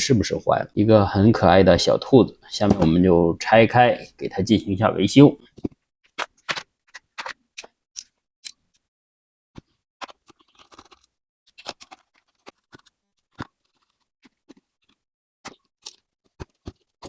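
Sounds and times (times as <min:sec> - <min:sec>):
plastic casing clicks and scrapes: 0:05.6 - 0:08.6, 0:09.6 - 0:14.7.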